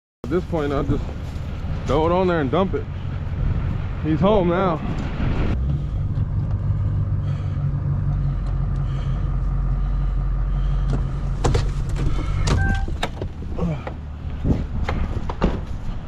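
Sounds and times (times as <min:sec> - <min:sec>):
engine running: 0:00.2 - 0:16.0
sharp knocks and clatter: 0:10.9 - 0:16.0.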